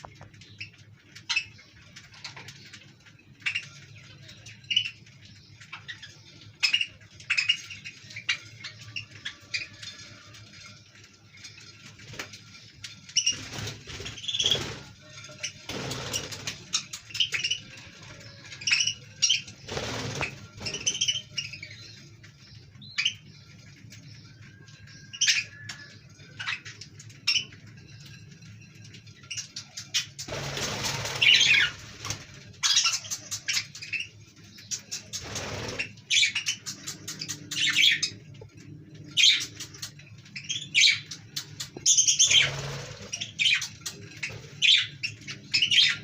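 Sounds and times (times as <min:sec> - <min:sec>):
budgerigars chirping: 0:03.4 - 0:10.1, 0:11.5 - 0:23.5, 0:29.2 - 0:38.4, 0:39.0 - 0:46.0.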